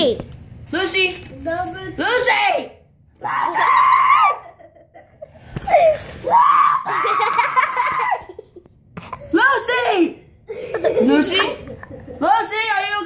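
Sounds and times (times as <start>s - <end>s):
child crying out: 3.2s - 4.6s, 5.8s - 8.4s
children laughing shrilly: 3.2s - 8.7s.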